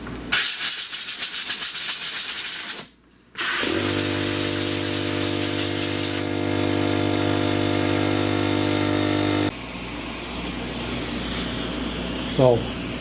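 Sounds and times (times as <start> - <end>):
compressed air hissing from blowgun: 2.6 - 6.2
machine hum: 3.6 - 13.0.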